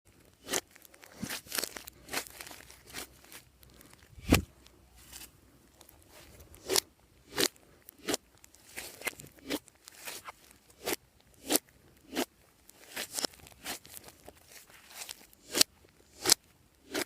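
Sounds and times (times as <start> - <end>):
slime crackling and squishing: 0.1 - 17.0.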